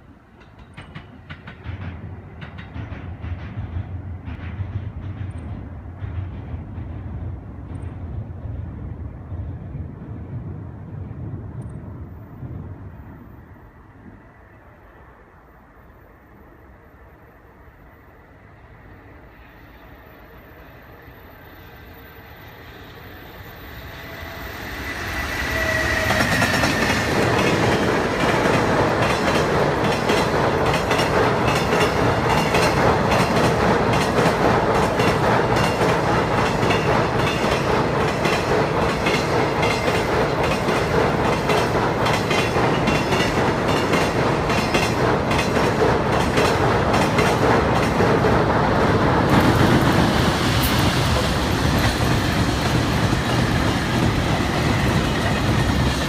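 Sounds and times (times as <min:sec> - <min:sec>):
train wheels clattering on rails: 0:00.0 - 0:11.9, 0:24.6 - 0:56.0.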